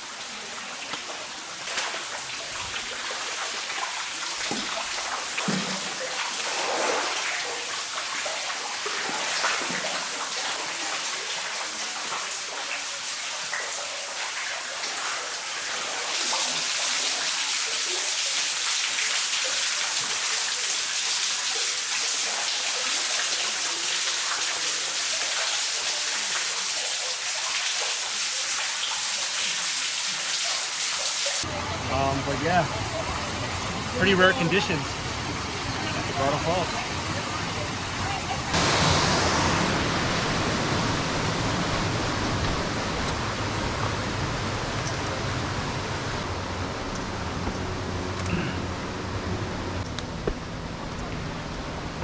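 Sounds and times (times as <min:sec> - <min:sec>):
waterfall rushing: 0:31.4 - 0:46.3.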